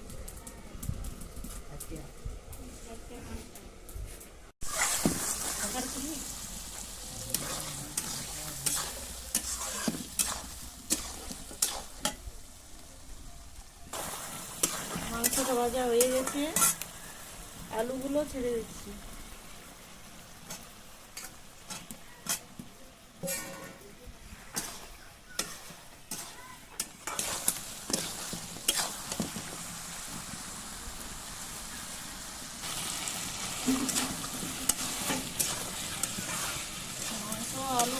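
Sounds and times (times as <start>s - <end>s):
spatula scraping a pan: 4.6s - 6.0s, 6.7s - 12.2s, 14.0s - 17.2s, 20.5s - 22.5s, 23.2s - 29.6s, 32.6s - 37.9s
chicken sizzling in a pan: 4.6s - 37.9s.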